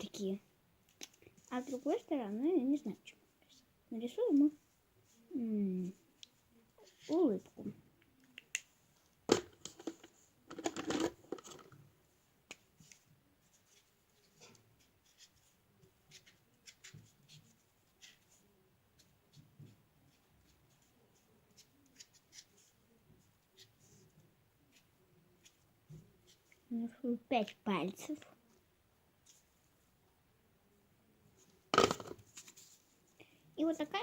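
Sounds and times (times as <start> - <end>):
knocks and rustles: 31.7 - 32.6.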